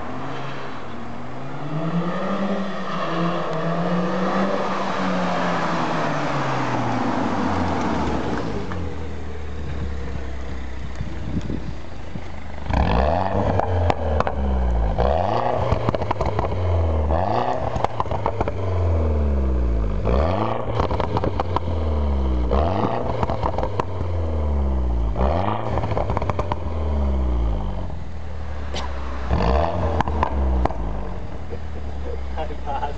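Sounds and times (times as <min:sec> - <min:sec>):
car engine revving: 0:00.0 - 0:32.9
exhaust crackles and pops: 0:07.6 - 0:19.0, 0:20.0 - 0:24.3, 0:25.0 - 0:28.0, 0:28.7 - 0:32.9.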